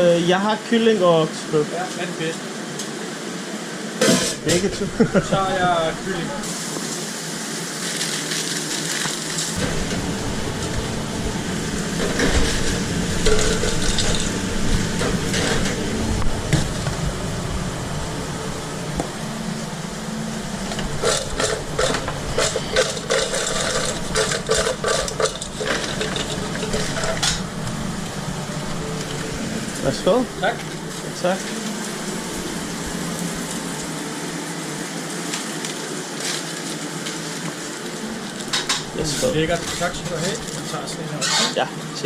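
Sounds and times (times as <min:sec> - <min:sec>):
steady kitchen hiss: 0:00.0 - 0:42.0
utensils and containers clattering: 0:04.0 - 0:04.9, 0:12.0 - 0:14.4, 0:20.7 - 0:27.5, 0:38.3 - 0:41.6.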